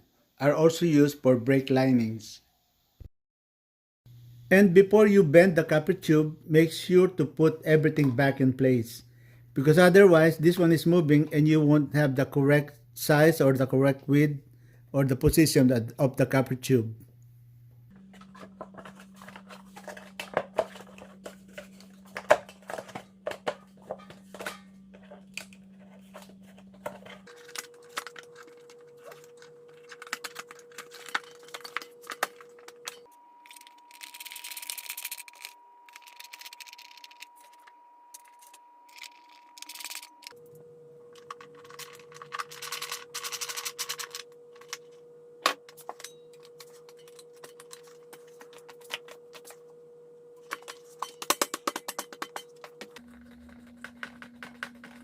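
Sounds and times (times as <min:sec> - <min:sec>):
faint steady hum: 0:04.1 - 0:55.0
metal parts clicking and tapping: 0:41.2 - 0:44.8, 0:50.5 - 0:53.1.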